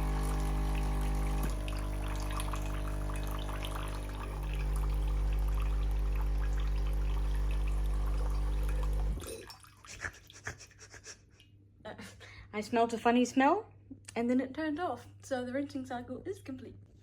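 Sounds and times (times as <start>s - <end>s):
coffee machine pump humming: 0.0s - 9.4s
water pouring into container: 0.0s - 10.2s.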